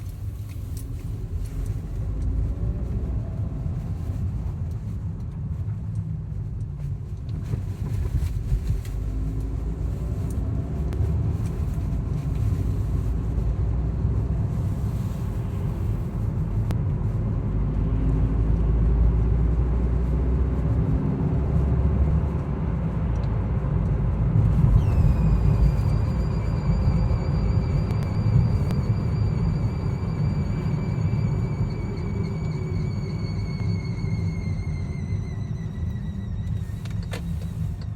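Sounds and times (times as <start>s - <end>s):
car engine rumble: 0.0s - 37.9s.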